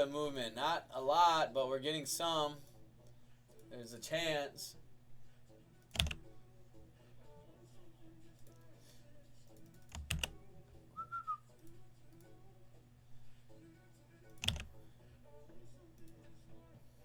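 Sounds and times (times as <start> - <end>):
faint background music: 0.0 - 17.0
whistled note: 11.0 - 11.4.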